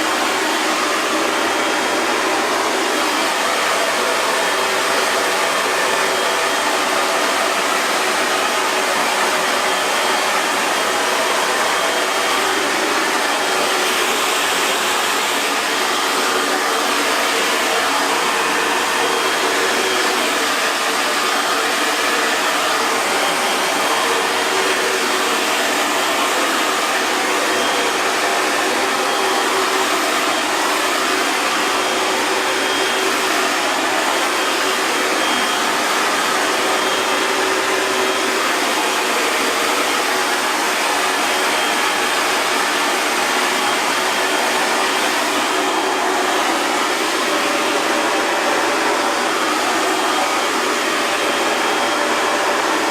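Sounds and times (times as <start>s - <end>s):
hair dryer running: 0.0s - 52.9s.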